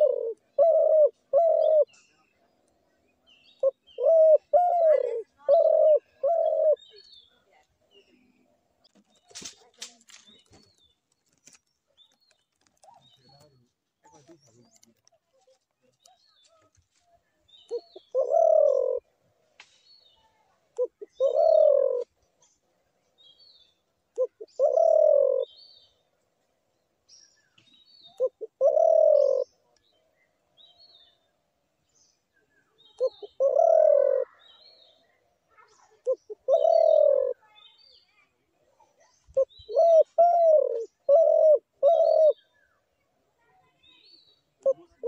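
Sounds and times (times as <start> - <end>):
dove cooing: 0.0 - 2.0, 3.6 - 7.0, 17.7 - 19.1, 20.8 - 22.1, 24.2 - 25.6, 28.1 - 29.6, 33.0 - 34.5, 35.9 - 37.4, 39.3 - 42.4, 44.6 - 45.0
small birds chirping: 0.0 - 45.0.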